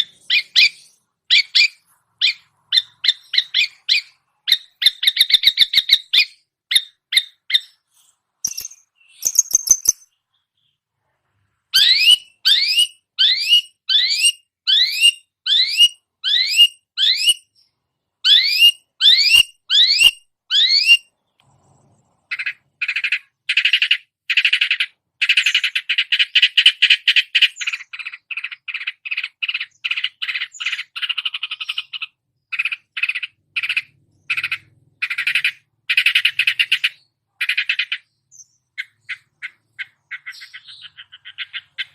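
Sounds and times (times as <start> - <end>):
bird chattering rattle: 8.4 - 10.1.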